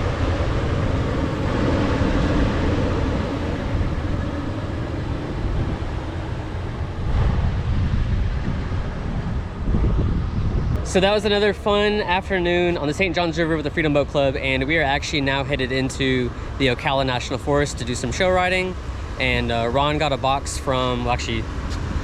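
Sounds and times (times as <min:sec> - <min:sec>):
moving vehicle rumbling: 0:00.0 - 0:22.0.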